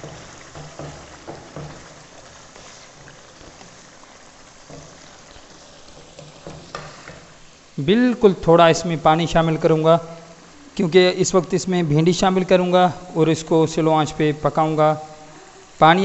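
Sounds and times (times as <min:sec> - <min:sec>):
wooden spoon scraping pot: 0:00.0 - 0:07.5
masala sizzling and bubbling: 0:00.0 - 0:16.0.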